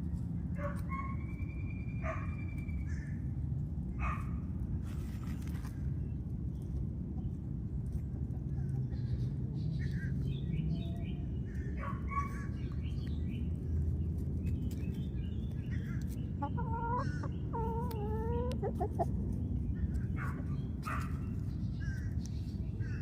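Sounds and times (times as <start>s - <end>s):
low steady rumble: 0.0s - 23.0s
chickens clucking: 4.9s - 13.0s, 15.5s - 22.5s.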